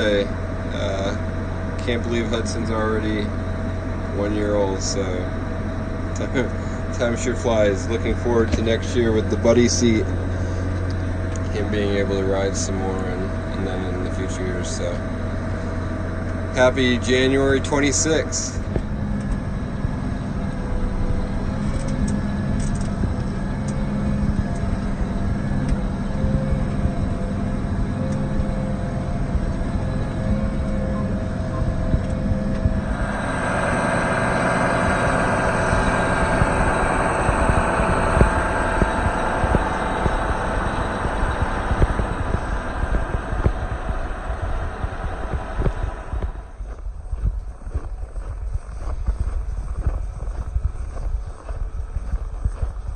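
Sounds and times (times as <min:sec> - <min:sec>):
tractor diesel engine running: 0:00.0 - 0:52.9
even rushing noise: 0:31.2 - 0:46.8.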